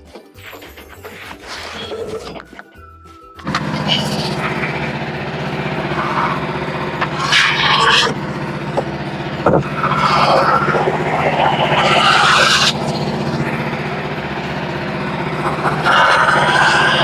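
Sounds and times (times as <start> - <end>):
sawmill engine droning: 0.0 - 17.0
loud hissing noise: 3.8 - 17.0.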